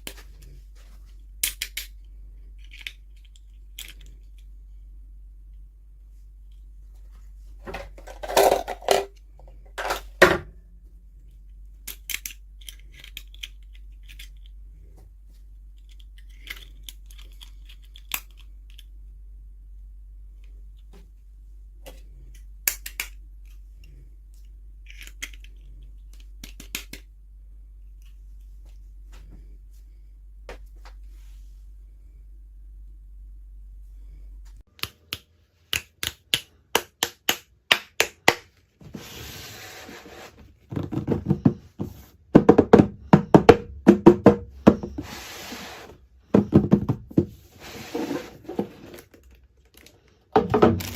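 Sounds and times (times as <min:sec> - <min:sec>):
plastic pieces clicking: 0:01.4 - 0:04.5, 0:11.8 - 0:14.6, 0:15.7 - 0:18.9, 0:22.3 - 0:23.6, 0:24.8 - 0:27.1.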